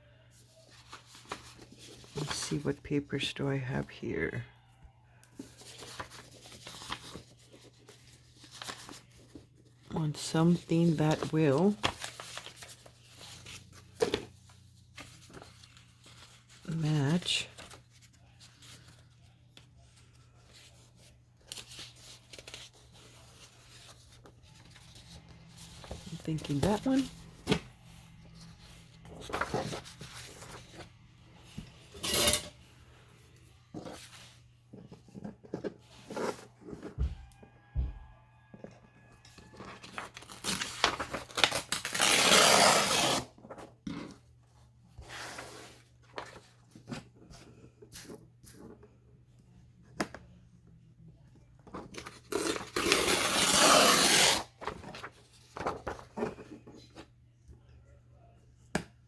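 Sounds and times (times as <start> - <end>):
paper rustling and sliding: 0.4 - 2.6, 5.4 - 9.6, 10.4 - 16.6, 21.4 - 32.4, 39.5 - 43.6, 45.0 - 48.2, 51.7 - 56.7
paper rustling and tapping: 39.5 - 41.5, 54.6 - 57.0
paper tearing: 39.9 - 43.3, 52.0 - 55.8.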